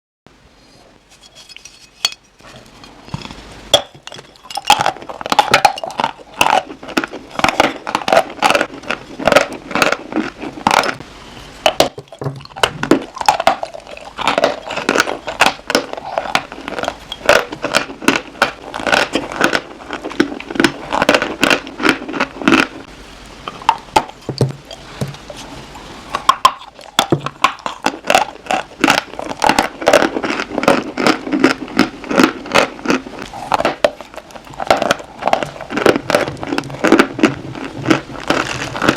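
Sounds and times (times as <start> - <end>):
chalk crunching: 26.6 - 38.9.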